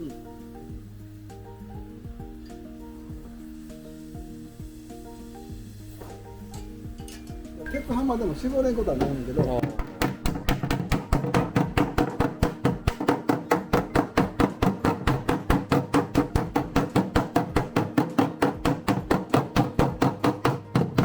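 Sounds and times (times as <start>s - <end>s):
hammer tapping on metal panel: 9.0s - 21.0s.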